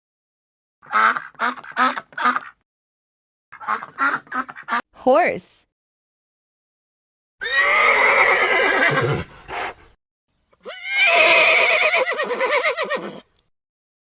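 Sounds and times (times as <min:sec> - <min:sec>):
horse neighing: 0:07.4 - 0:09.8, 0:10.6 - 0:13.3.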